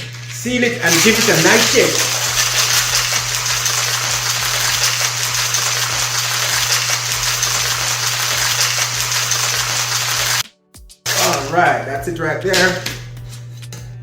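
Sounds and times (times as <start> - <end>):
ice rattling in cocktail shaker: 0.0 - 10.4, 11.1 - 11.8.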